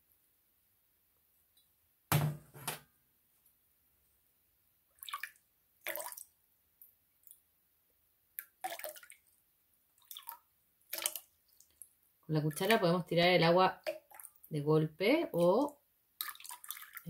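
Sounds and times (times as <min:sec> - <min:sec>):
water splashing: 0:08.6 - 0:09.3, 0:10.0 - 0:11.8, 0:15.3 - 0:17.0.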